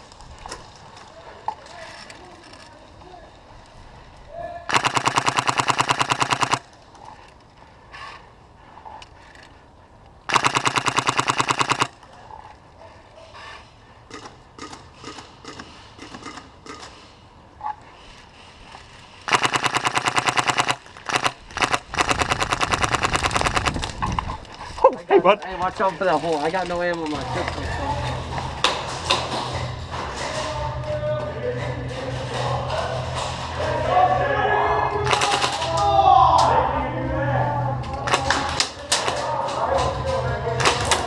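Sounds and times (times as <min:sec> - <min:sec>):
airsoft gun rapid firing: 0:04.7 - 0:06.7, 0:10.3 - 0:12.0, 0:19.3 - 0:23.8, 0:35.1 - 0:35.7.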